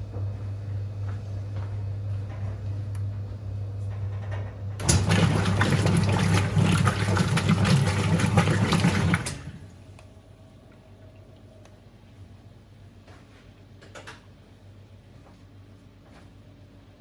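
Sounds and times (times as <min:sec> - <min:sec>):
washing machine humming: 0:00.0 - 0:16.2
water rushing through machine: 0:04.8 - 0:09.8.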